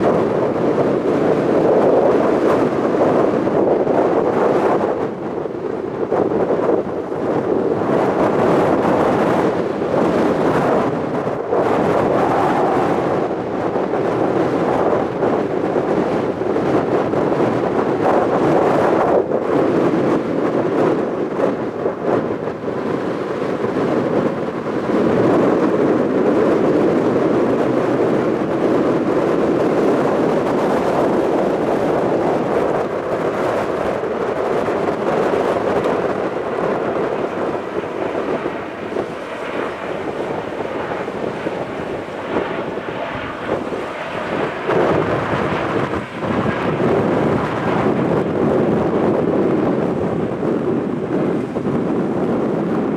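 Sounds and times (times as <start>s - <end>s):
jet airliner landing rumble: 0.0s - 52.9s.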